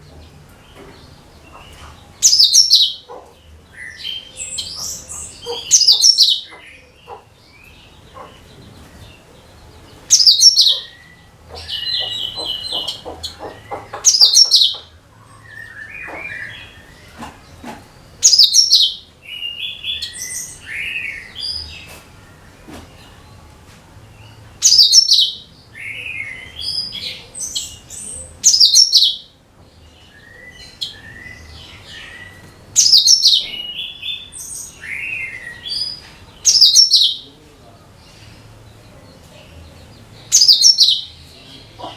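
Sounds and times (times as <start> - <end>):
bird chattering notes: 1.5 - 3.3, 3.9 - 7.3, 10.1 - 14.9, 16.0 - 19.0, 24.6 - 25.4, 26.2 - 29.2, 32.8 - 33.8, 35.4 - 37.2.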